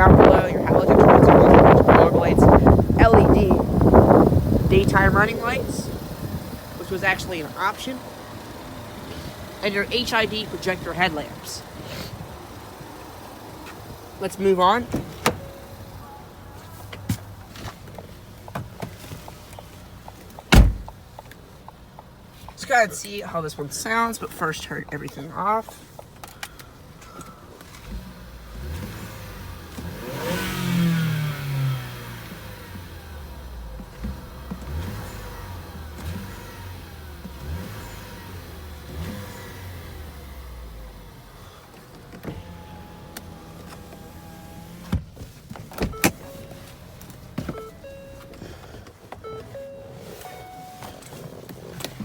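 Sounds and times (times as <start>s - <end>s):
car engine revving: 0.0s - 16.4s, 27.7s - 45.0s
sharp clunks: 20.4s - 21.0s
power window motor: 28.6s - 45.0s
short beeps: 47.5s - 48.4s, 49.2s - 51.1s.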